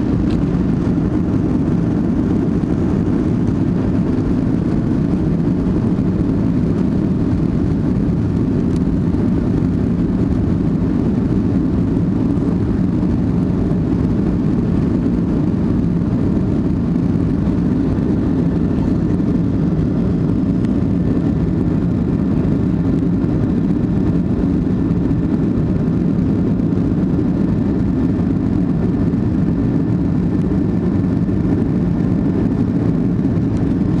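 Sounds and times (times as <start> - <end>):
jet engine cabin rumble: 0.0 - 34.0.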